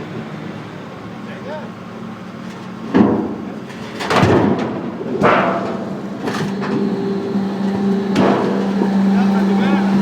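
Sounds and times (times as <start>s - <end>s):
loud metal bangs: 4.0s - 6.9s, 7.7s - 9.2s
steady machine hum: 5.3s - 10.0s.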